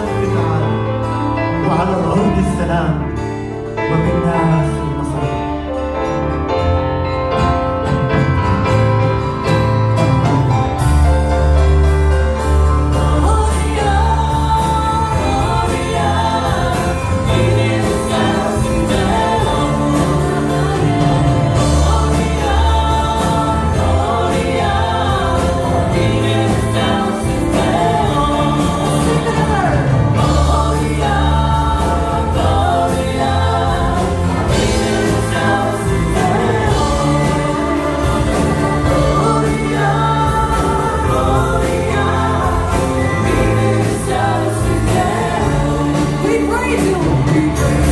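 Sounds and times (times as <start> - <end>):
group singing a hymn: 0.0 - 2.2, 12.3 - 47.9.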